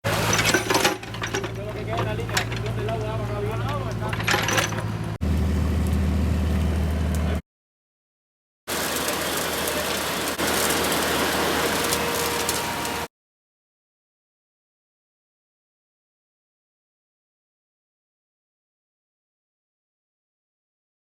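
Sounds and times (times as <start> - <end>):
diesel engine humming: 0.0 - 7.4, 8.7 - 13.1.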